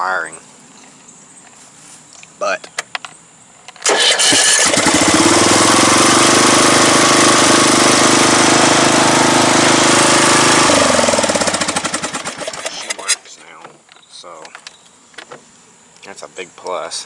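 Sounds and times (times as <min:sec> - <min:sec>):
electric starter cranking engine: 0:03.8 - 0:13.2
mower engine running: 0:03.8 - 0:13.2.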